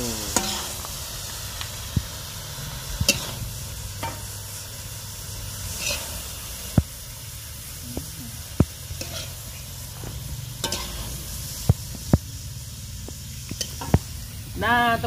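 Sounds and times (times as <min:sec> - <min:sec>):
food sizzling in a wok: 0:00.0 - 0:15.0
metal spatula scraping a wok: 0:00.3 - 0:00.9, 0:02.6 - 0:06.7, 0:08.8 - 0:11.7, 0:13.6 - 0:14.0.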